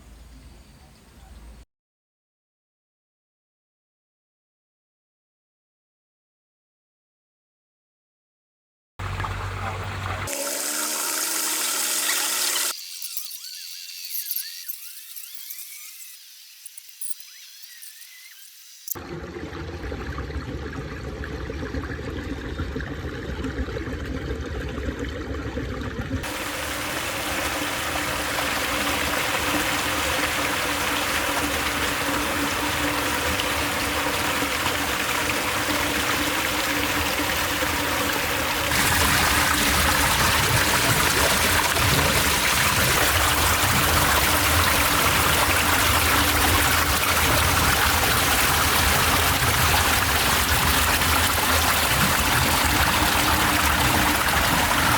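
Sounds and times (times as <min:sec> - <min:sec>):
water rushing and splashing: 0:09.0 - 0:12.8, 0:26.2 - 0:54.9.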